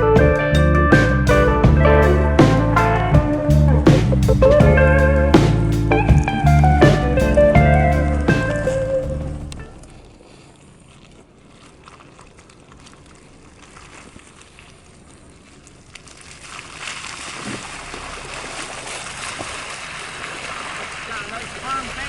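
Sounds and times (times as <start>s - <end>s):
vehicle driving on dirt trail: 0.0s - 10.2s.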